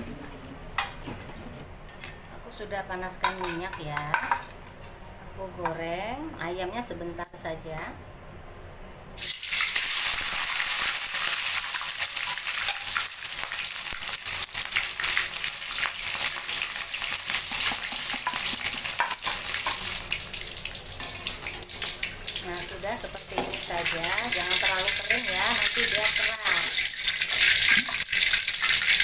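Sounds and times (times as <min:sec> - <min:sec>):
chicken sizzling in hot oil: 0:09.2 - 0:29.0.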